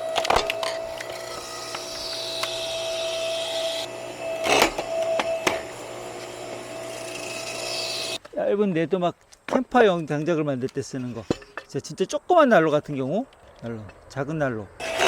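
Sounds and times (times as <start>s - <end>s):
high hydraulic hiss: 0.0s - 8.2s
log splitter motor hum: 0.0s - 8.2s, 14.8s - 15.0s
wood cracking sharply: 0.0s - 8.2s.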